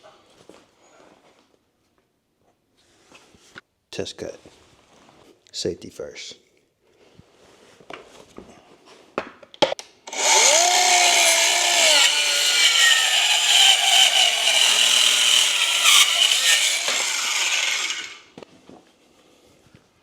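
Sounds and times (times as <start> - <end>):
circular saw cutting wood: 10.1 - 18.4.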